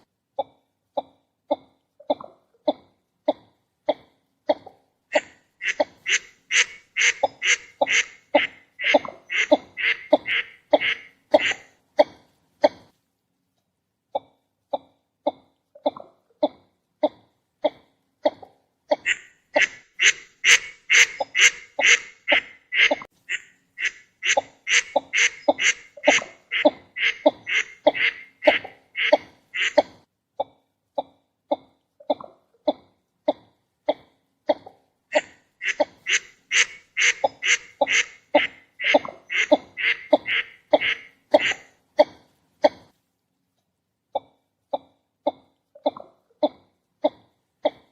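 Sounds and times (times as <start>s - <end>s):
ducks nasal calls: 5.1s - 11.8s, 19.0s - 29.9s, 35.1s - 41.7s.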